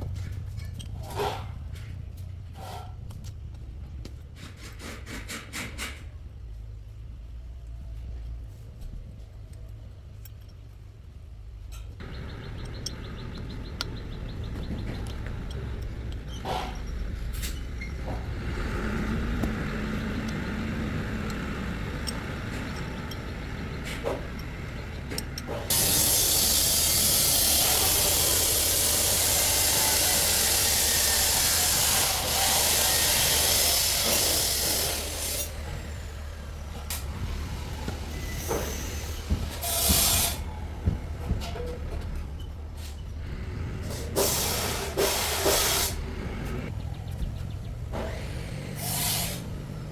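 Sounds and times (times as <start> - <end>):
constant low hum: 0.0 - 49.9
pressurised air jet hissing: 25.5 - 35.6, 43.9 - 46.7, 48.7 - 49.5.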